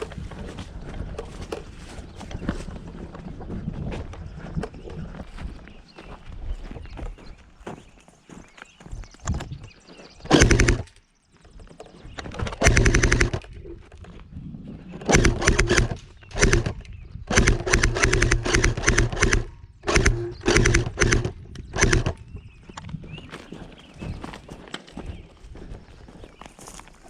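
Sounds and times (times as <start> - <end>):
airsoft gun firing bursts: 10.3 - 10.9, 12.4 - 13.5, 15.1 - 22.2.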